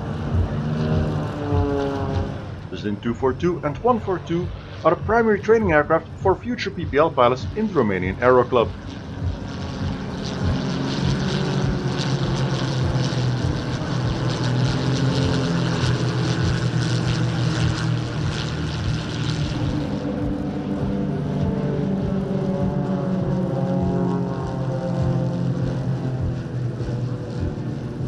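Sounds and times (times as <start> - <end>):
propeller aircraft engine drone: 0.0 - 28.0.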